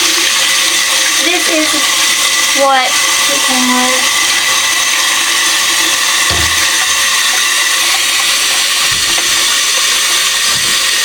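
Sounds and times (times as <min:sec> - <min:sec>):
water running from tap: 0:00.0 - 0:11.0
dull knocks: 0:06.2 - 0:06.8, 0:08.8 - 0:09.5.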